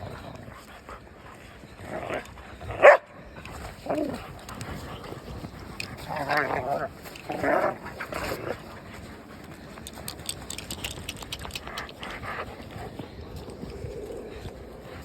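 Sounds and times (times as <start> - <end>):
scattered clicks: 9.4 - 12.4.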